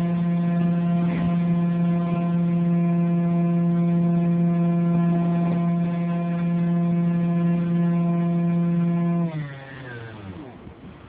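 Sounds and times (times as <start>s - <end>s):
model airplane motor buzzing: 0.0s - 11.0s.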